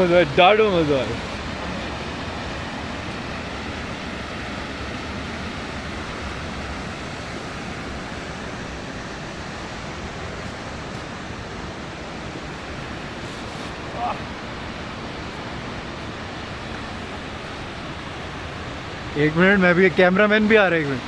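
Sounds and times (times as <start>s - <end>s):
waterfall crashing: 0.0s - 21.0s.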